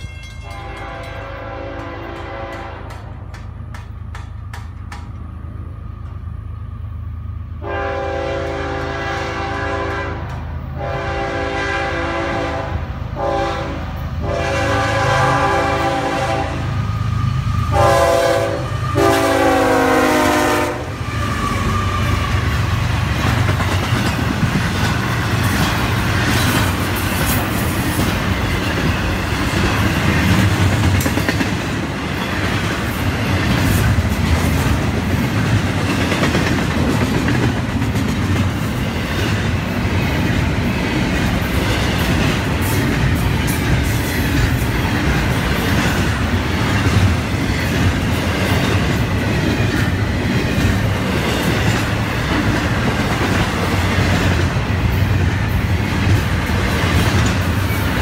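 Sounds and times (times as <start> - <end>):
freight train rumbling past: 0.0 - 58.0
wheels clicking over rails: 1.8 - 5.3.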